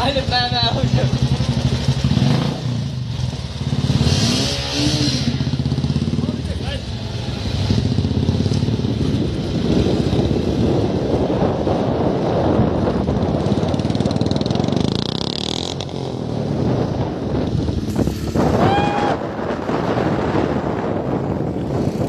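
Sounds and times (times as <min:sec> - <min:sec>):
motorcycle engine running: 0:00.0 - 0:22.0
wind noise: 0:07.4 - 0:22.0.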